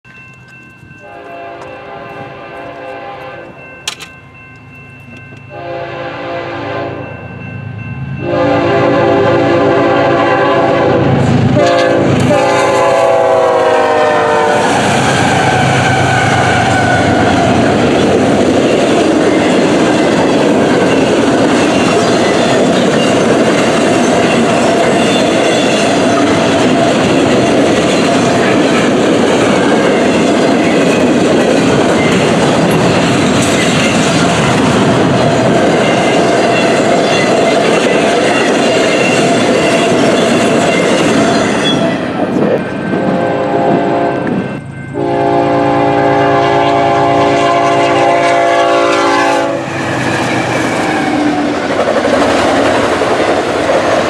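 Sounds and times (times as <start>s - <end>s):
train wheel and rail noise: 0.0s - 54.0s
locomotive air horn blasts: 1.0s - 3.6s, 5.5s - 7.0s, 8.2s - 17.6s, 43.0s - 44.4s, 45.0s - 49.8s
wheels clickety-clack: 17.5s - 42.8s, 50.0s - 54.0s.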